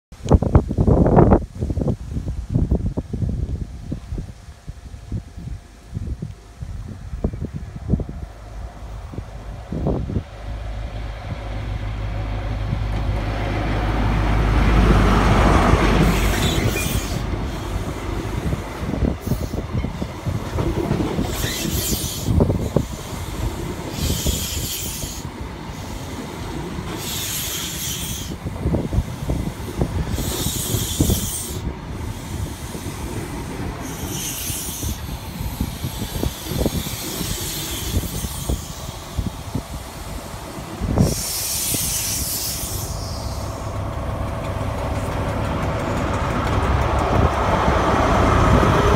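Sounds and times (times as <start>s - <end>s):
train engine hum: 0.2s - 48.9s
train hiss: 8.0s - 46.4s
train wheels knocking: 43.5s - 48.9s.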